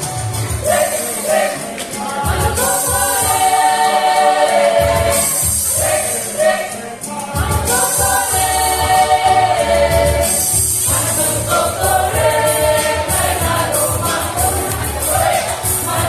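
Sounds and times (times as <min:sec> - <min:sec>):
choir singing held chords: 0:00.0 - 0:16.0.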